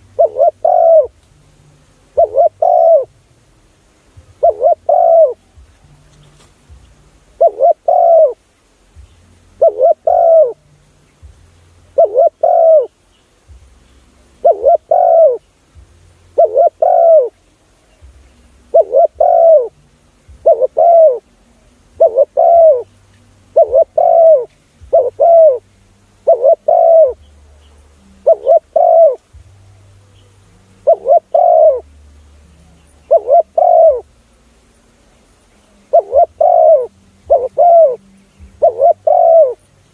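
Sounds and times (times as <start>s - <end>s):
dove cooing: 0.0s - 1.2s, 2.1s - 3.2s, 4.1s - 6.1s, 7.2s - 8.4s, 9.6s - 10.7s, 11.9s - 13.0s, 14.2s - 34.2s, 35.6s - 39.8s.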